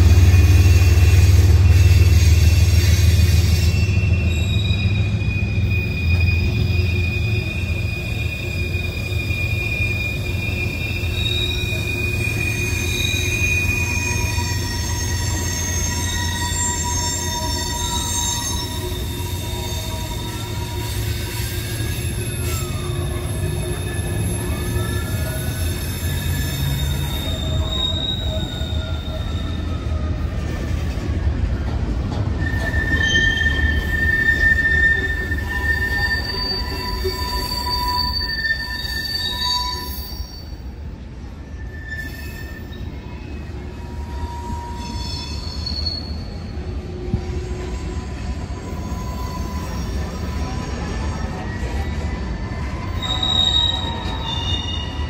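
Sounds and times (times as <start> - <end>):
high wheel squeal: 0.0 - 31.2, 32.3 - 55.0
freight cars rumbling on rails: 0.0 - 55.0.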